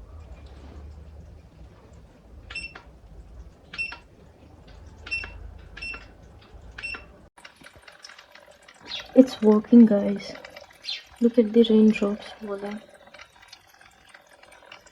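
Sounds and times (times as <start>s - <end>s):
low steady hum: 0.0s - 7.3s.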